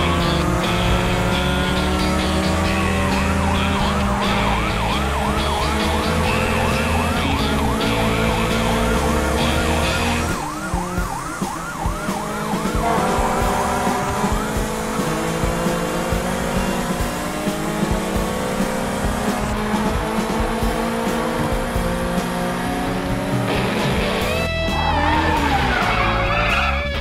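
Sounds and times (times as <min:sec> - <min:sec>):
cartoon siren yelping: 0:03.1 - 0:14.6, 0:24.8 - 0:27.0.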